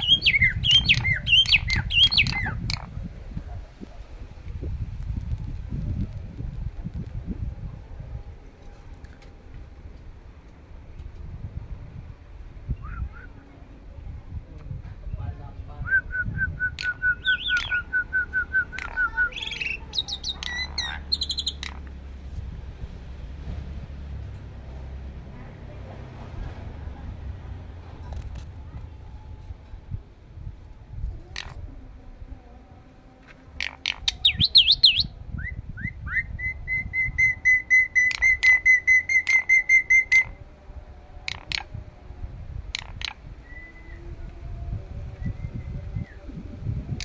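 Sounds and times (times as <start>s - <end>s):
starling clicks and whistles: 16.0s - 21.8s, 33.6s - 40.4s
starling song: 16.6s - 21.7s.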